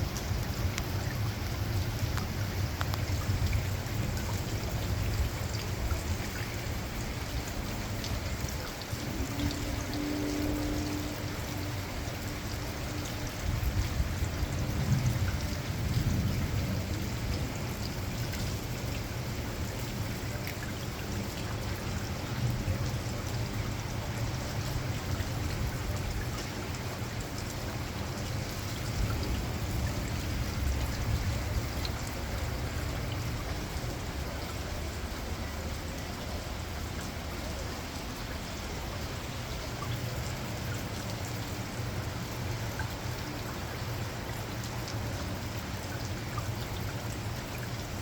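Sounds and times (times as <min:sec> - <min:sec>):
heavy rain pouring: 0:00.0 - 0:48.0
low thunder rumble: 0:09.0 - 0:19.7.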